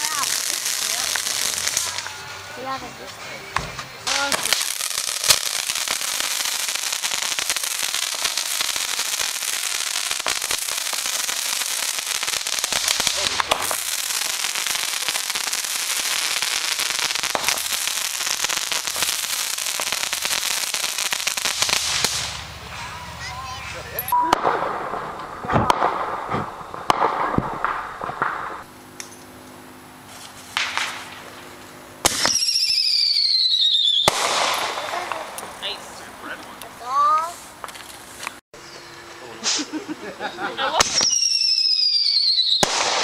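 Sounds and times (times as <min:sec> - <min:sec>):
voices: 0:00.0 - 0:04.8, 0:22.4 - 0:24.6, 0:34.6 - 0:41.2
fountain firework hissing and crackling: 0:00.0 - 0:38.4, 0:39.0 - 0:43.0
sharp cracks: 0:04.1 - 0:22.4, 0:24.3 - 0:29.3, 0:30.5 - 0:31.4, 0:32.0 - 0:32.7, 0:34.0 - 0:35.8, 0:42.5 - 0:43.0
falling whistle: 0:41.0 - 0:42.6.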